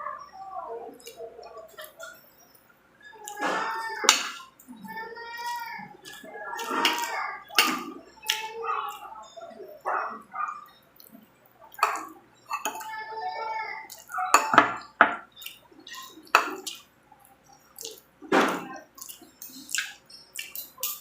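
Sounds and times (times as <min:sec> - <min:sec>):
spoon clinking on dishes: 0:11.7 - 0:13.0, 0:13.9 - 0:16.8.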